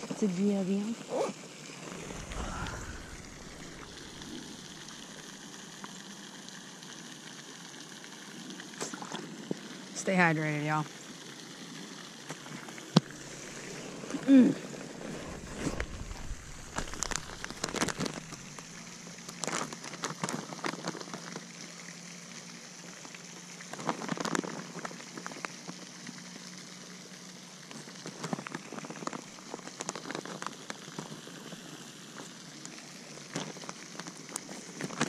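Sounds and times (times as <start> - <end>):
person chewing jerky crunchily: 1.9 - 5.2, 15.0 - 21.1.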